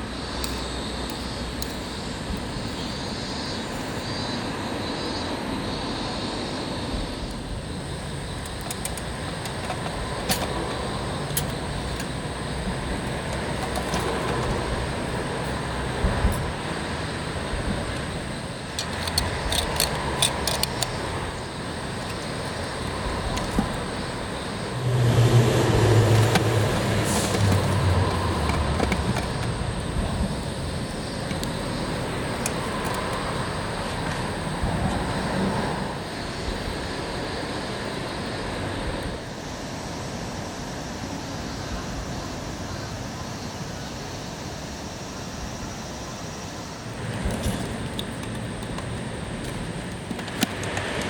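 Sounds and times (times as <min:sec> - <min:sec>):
outdoor background noise: 0:00.0 - 0:51.0
sharp clicks: 0:17.9 - 0:23.8
vehicle passing: 0:22.6 - 0:30.4.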